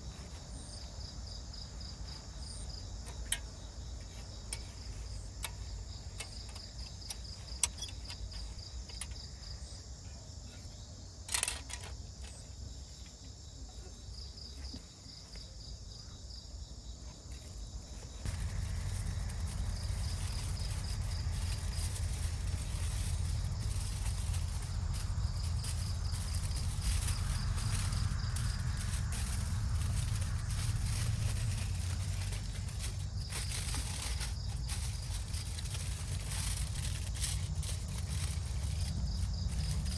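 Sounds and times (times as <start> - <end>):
insects chirping: 0.0 - 39.9
steady low rumble: 18.2 - 39.9.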